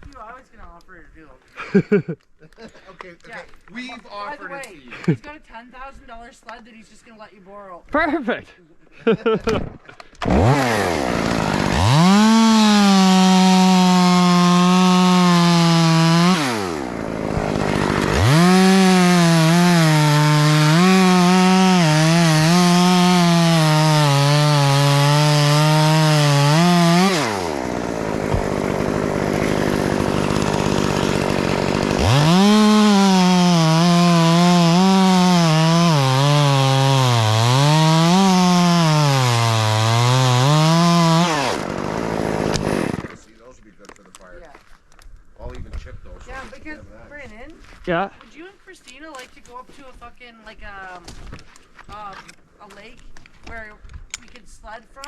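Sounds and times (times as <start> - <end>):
chainsaw cutting wood: 9.4 - 43.3.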